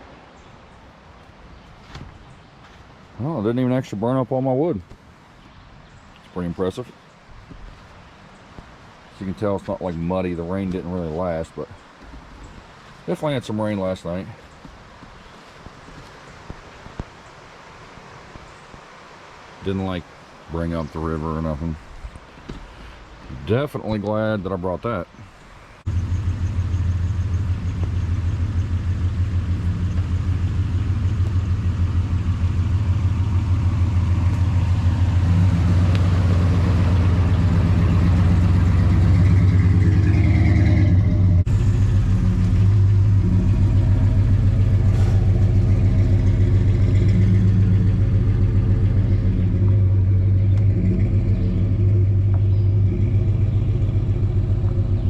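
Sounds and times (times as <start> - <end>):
vehicle engine droning: 25.8 - 55.0.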